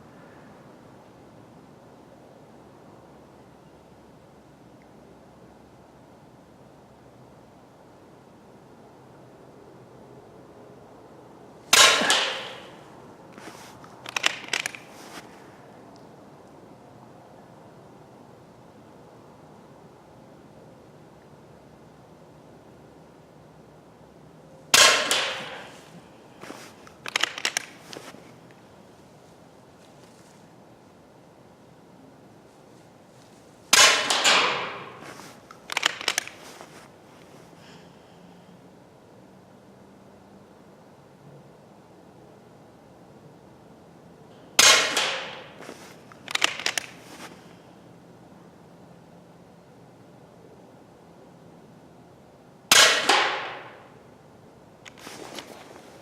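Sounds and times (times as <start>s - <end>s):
air rifle shot: 11.7s - 12.8s, 24.7s - 26.0s, 33.7s - 36.3s, 44.6s - 45.6s, 52.7s - 53.8s
quiet sharp clicks: 13.3s - 14.9s, 26.8s - 28.6s, 35.1s - 36.6s
sharp clicks: 13.8s - 14.9s, 26.4s - 28.1s, 33.8s - 36.8s, 44.6s - 47.0s.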